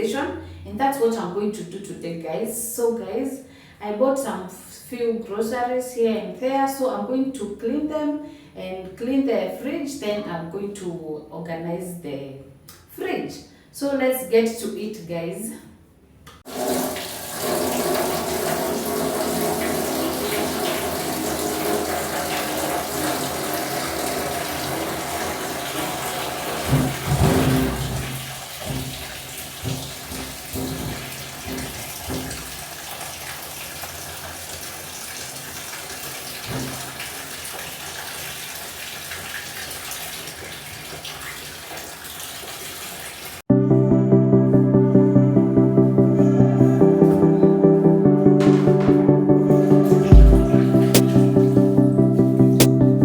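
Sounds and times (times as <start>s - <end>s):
tap water running into sink: 16.5s - 43.4s
low bumps and knocks: 26.7s - 32.6s.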